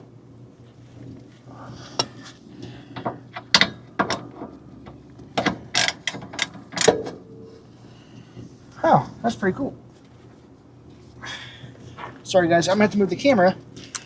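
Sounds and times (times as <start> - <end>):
socket ratchet clicking: 5.7 - 7.0.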